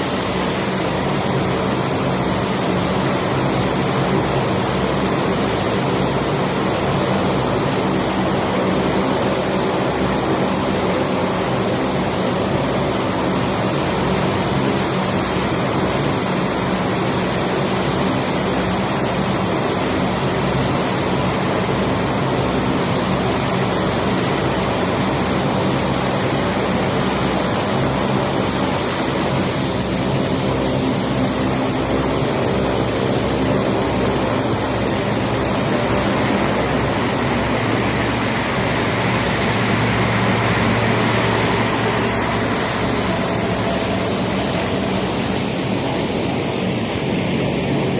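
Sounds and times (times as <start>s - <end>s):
aircraft engines humming: 0.0s - 47.9s.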